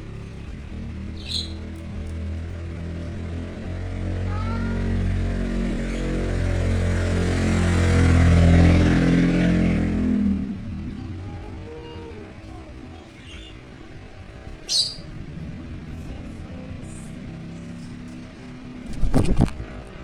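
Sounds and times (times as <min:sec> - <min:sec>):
vehicle engine passing by: 0:00.0 - 0:20.0
faint bird chirps: 0:01.1 - 0:02.0, 0:14.5 - 0:15.2.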